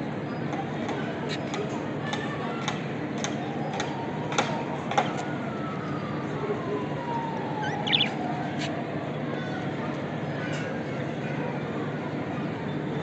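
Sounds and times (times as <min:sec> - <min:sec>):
budgerigars chattering: 0:07.6 - 0:08.2
rising chirps: 0:07.6 - 0:08.2.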